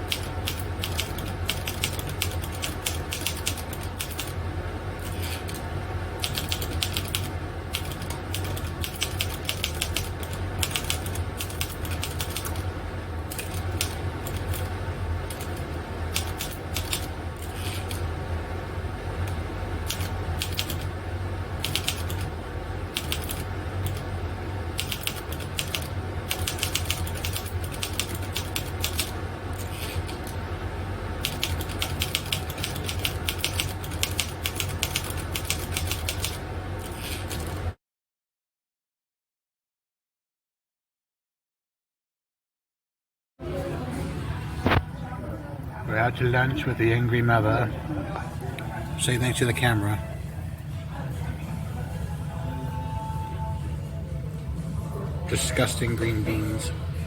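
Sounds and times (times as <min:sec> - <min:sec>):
steady low hum: 0:00.0 - 0:37.8, 0:43.4 - 0:57.0
keyboard typing clicks: 0:00.1 - 0:04.3, 0:06.2 - 0:12.6, 0:19.2 - 0:20.9, 0:24.8 - 0:30.3.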